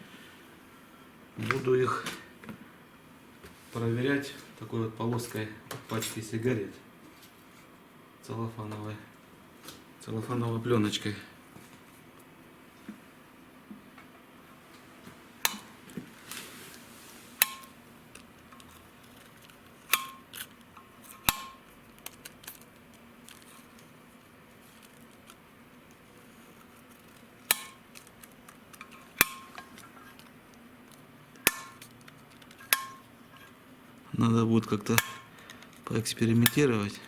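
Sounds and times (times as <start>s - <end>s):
valves striking metal seats: 31.4s - 31.8s, 32.6s - 33.0s.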